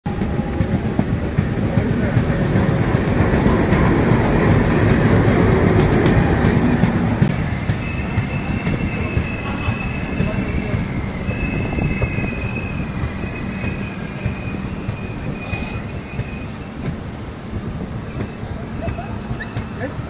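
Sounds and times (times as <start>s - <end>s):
train rumbling on track: 0.0s - 20.0s
high steady squeal: 6.2s - 16.9s.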